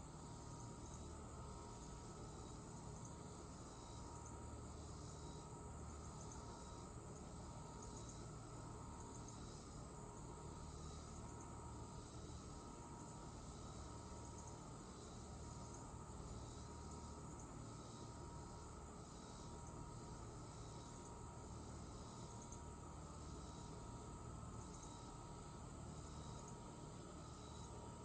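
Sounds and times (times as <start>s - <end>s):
faint insect call: 0.0s - 28.0s
insects trilling: 0.0s - 28.0s.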